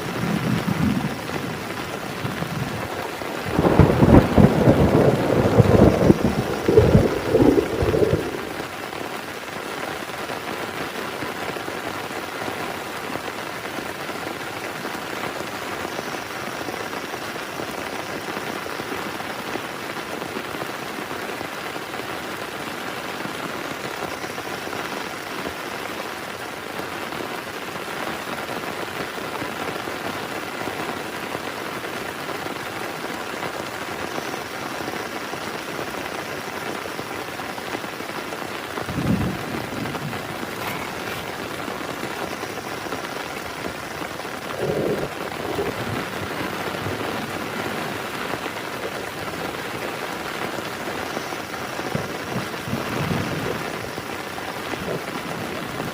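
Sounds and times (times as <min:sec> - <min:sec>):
thunder rumble: 0:00.0 - 0:09.0, 0:38.6 - 0:48.5, 0:51.7 - 0:54.1
heavy rain falling: 0:00.0 - 0:55.9.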